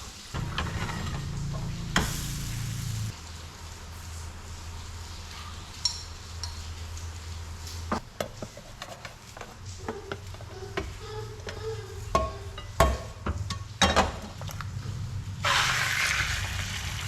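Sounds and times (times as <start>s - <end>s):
steady low hum: 0.4s - 5.6s
metal utensils clinking on pans: 5.3s - 6.8s, 8.2s - 14.6s.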